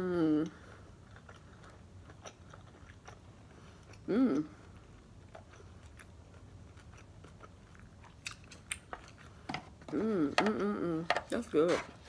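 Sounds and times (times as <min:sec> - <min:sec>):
chewing with wet mouth clicks: 0:00.9 - 0:09.5.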